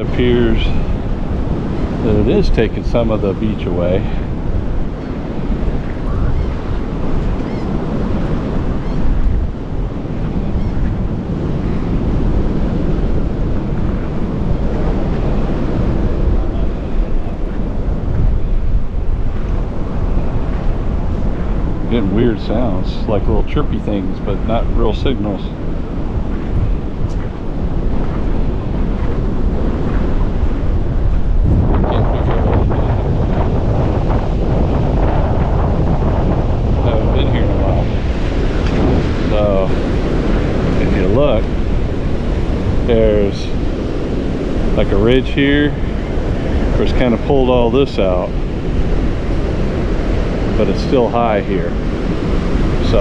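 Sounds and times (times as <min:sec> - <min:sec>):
breaking surf: 0:00.0 - 0:53.0
wind buffeting microphone: 0:00.0 - 0:53.0.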